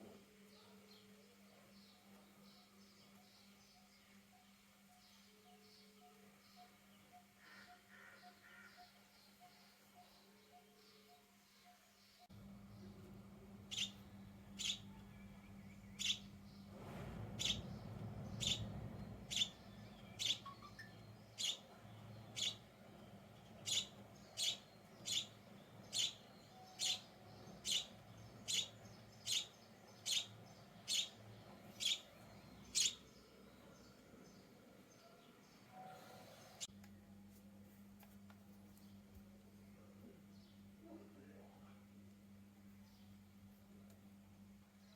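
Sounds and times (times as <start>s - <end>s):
faint low hum: 0.0s - 44.9s
sparrow chirping: 6.5s - 16.7s, 17.3s - 36.7s.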